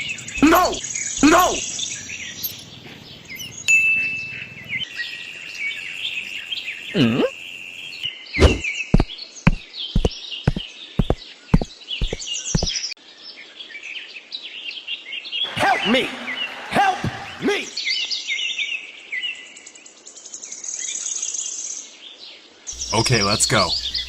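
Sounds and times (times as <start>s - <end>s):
small birds chirping: 0.0s - 12.9s, 22.7s - 24.0s
sharp knocks: 8.4s - 12.7s.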